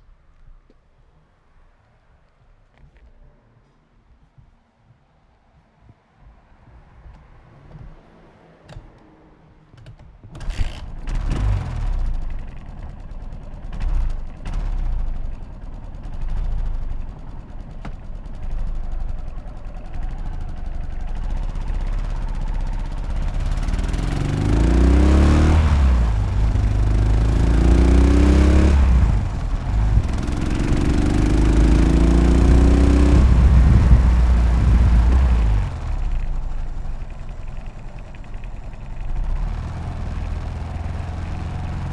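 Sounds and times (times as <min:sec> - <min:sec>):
engine clicks: 0:09.8 - 0:41.9
motorcycle engine accelerating: 0:10.4 - 0:41.9.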